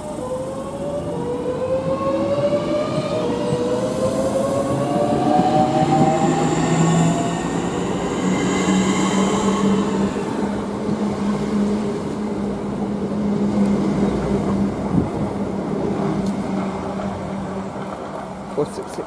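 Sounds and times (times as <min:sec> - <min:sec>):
train low hum and rail noise: 0:00.0 - 0:19.0
high whining tones: 0:01.5 - 0:10.8.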